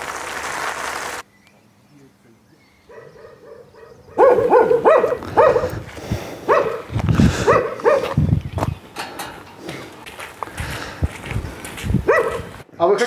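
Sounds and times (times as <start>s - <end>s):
dog barking: 2.9s - 8.3s, 12.0s - 12.6s.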